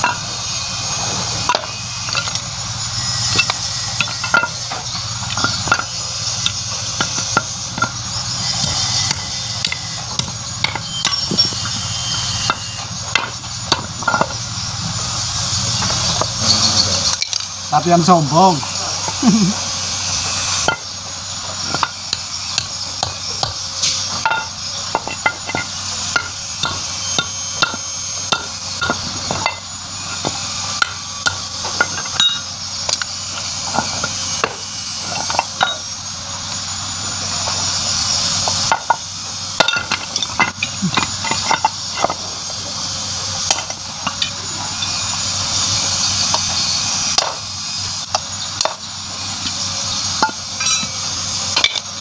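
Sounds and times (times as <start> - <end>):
hand tools knocking on metal: 21.6 - 33.1, 39.6 - 42.3, 50.2 - 51.0.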